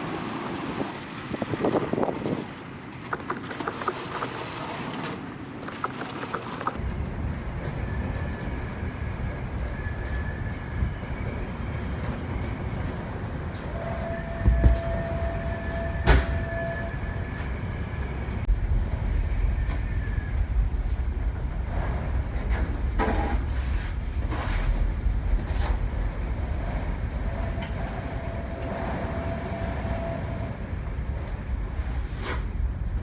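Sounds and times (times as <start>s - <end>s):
ferry engine rumble: 6.8s - 33.0s.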